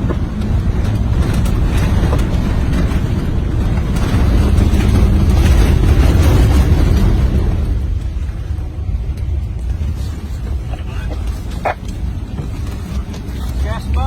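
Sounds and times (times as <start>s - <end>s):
bushfire roaring: 0.0s - 14.0s
fire crackling: 0.0s - 14.0s.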